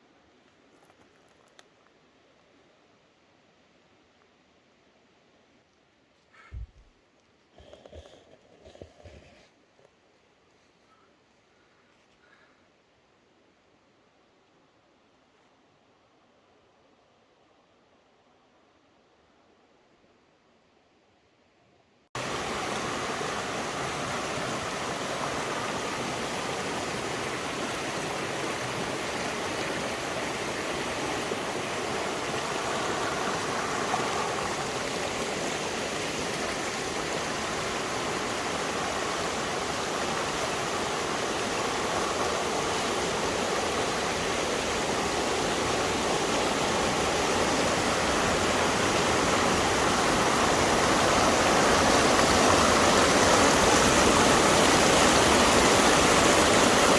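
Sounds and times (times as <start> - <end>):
waterfall rushing: 22.2 - 56.9.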